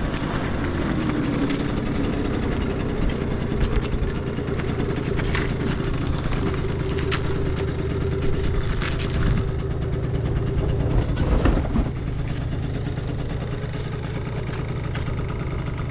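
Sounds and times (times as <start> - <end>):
scooter engine idling: 0.0 - 15.9.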